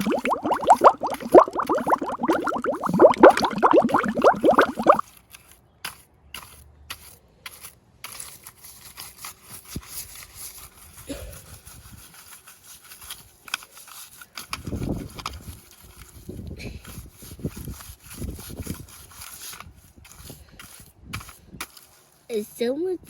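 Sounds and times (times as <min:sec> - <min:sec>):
water gushing and splashing: 0:00.0 - 0:05.0
faint handling clicks and scraping: 0:05.0 - 0:23.0.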